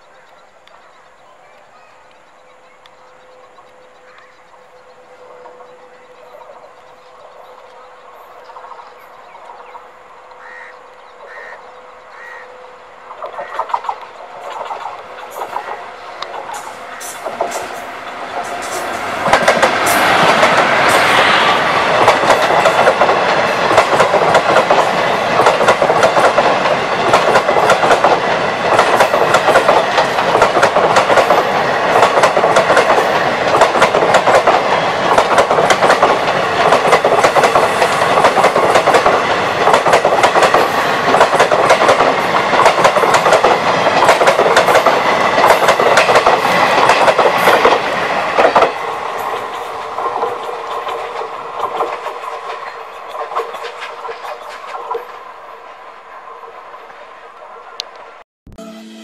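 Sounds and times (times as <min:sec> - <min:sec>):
electric locomotive passing: 0:00.0 - 0:59.0
train wheels clickety-clack: 0:13.1 - 0:55.3.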